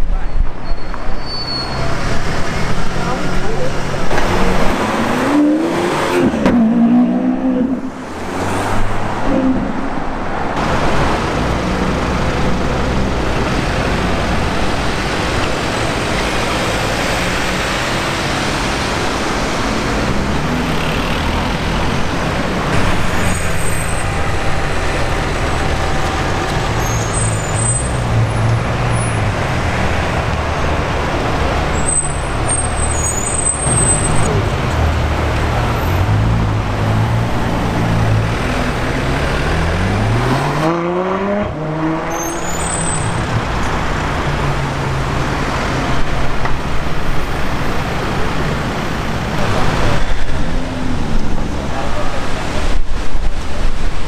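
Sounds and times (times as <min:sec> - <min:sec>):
car engines rumbling: 0:00.0 - 0:54.0
engine revving up: 0:36.8 - 0:42.2.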